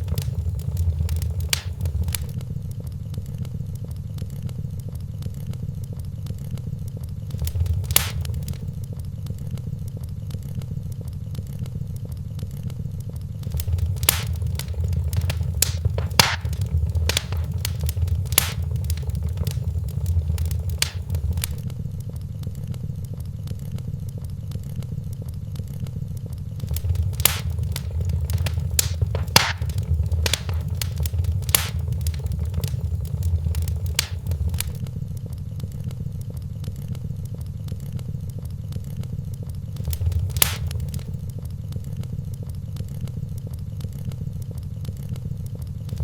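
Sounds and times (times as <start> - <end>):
fire popping and snapping: 0.0 - 2.5, 5.5 - 9.0, 12.6 - 22.0, 26.2 - 35.2, 37.2 - 46.0
fire low rumble: 0.0 - 46.0.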